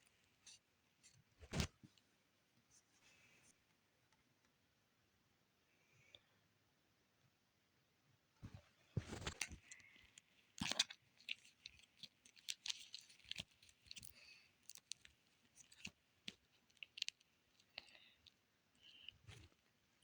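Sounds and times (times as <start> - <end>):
crinkling plastic and paper: 8.4 - 19.8.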